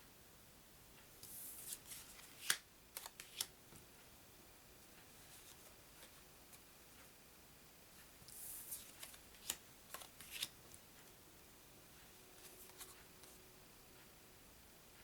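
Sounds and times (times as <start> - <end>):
cards sliding: 1.2 - 3.5, 8.3 - 10.6, 12.4 - 13.4.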